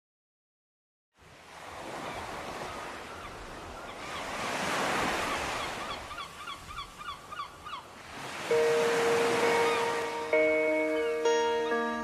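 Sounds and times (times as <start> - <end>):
bird calling: 5.1 - 12.0.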